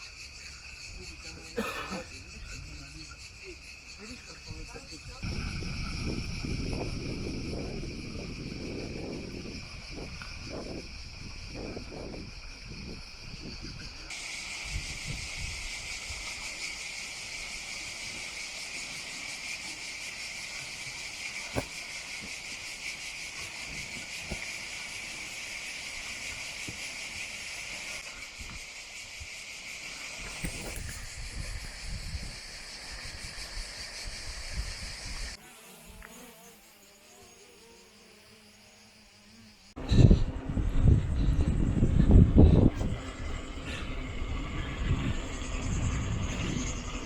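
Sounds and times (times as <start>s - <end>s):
insects buzzing: 0.0s - 47.0s
wind on microphone: 4.4s - 16.5s, 30.2s - 35.4s, 39.8s - 47.0s.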